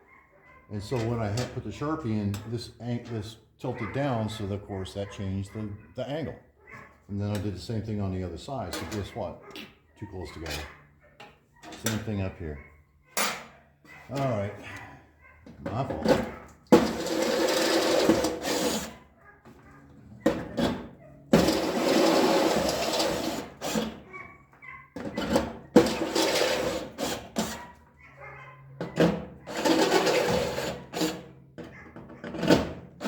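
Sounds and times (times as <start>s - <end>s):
power drill drilling sheet metal: 16.8s - 18.9s, 21.4s - 23.9s, 25.8s - 27.5s, 29.5s - 31.1s.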